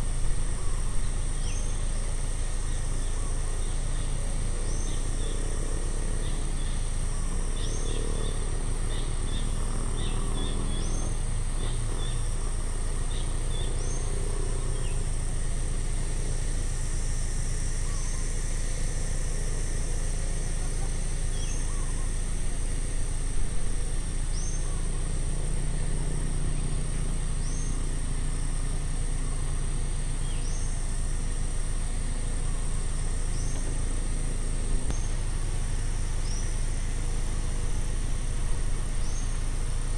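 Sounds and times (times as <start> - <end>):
high insect-like drone: 0.0 - 39.9.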